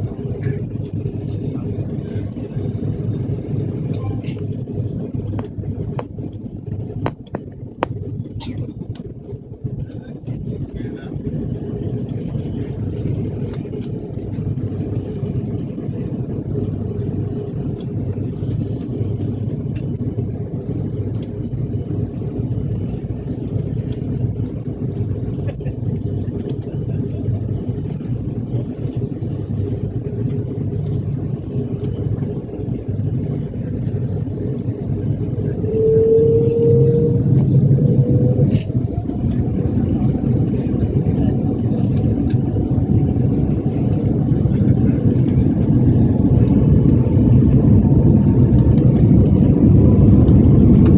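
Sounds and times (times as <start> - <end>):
airplane engines rumbling: 0.0 - 50.9
engine whine rising in pitch: 29.6 - 50.9.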